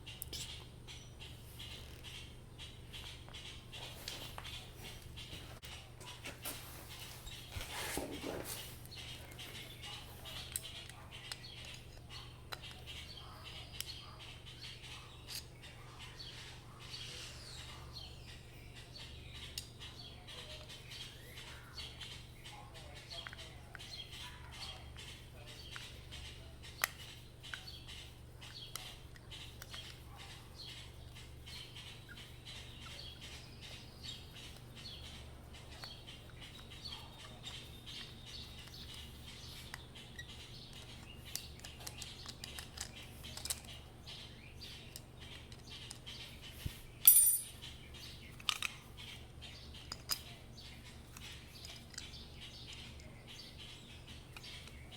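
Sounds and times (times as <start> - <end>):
faint bird chirping: 0.0 - 54.9
steady low hum: 0.0 - 54.9
metal parts clicking and tapping: 40.7 - 43.8, 44.7 - 46.1, 47.0 - 47.6, 48.3 - 48.8, 49.8 - 50.4, 51.1 - 52.8.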